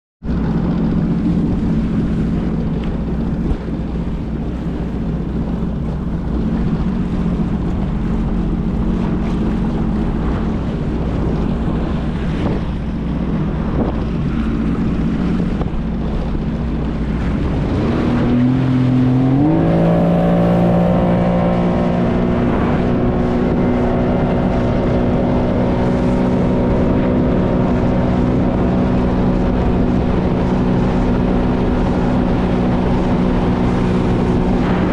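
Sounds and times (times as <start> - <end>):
jet ski engine running: 0.2 - 34.9
rushing noise: 32.5 - 34.9.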